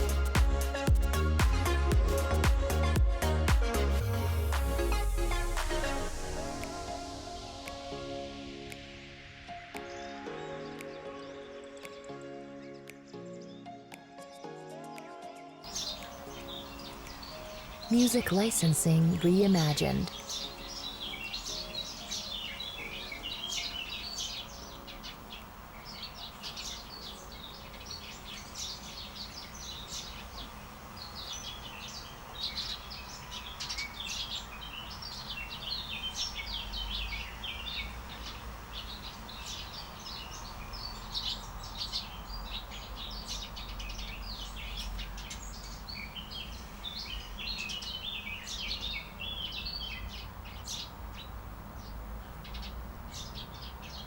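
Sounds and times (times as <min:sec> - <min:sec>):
small birds chirping: 0:15.7 - 0:54.0.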